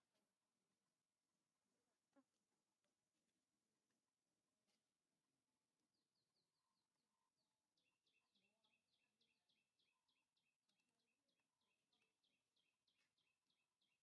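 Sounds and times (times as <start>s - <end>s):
rapid bird chirping: 5.8s - 14.0s.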